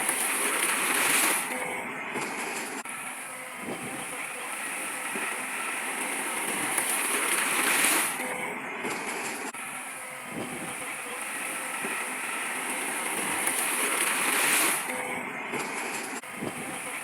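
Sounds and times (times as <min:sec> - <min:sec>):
earthmoving machinery: 0:00.0 - 0:17.0.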